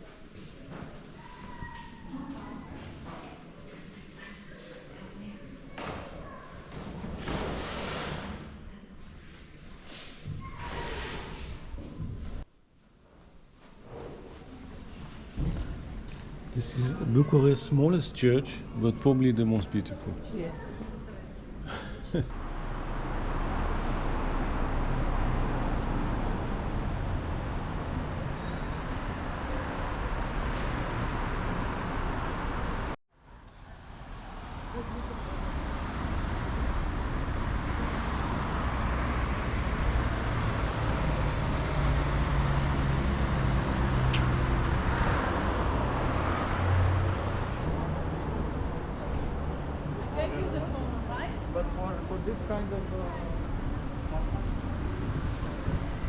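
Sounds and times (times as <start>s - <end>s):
city traffic passing: 14.7s - 56.0s.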